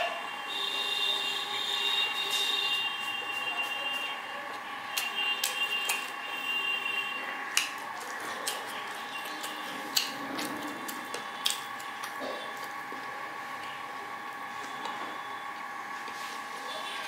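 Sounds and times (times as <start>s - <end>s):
high-pitched background hum: 0.0s - 17.0s
person chewing food: 7.5s - 13.8s.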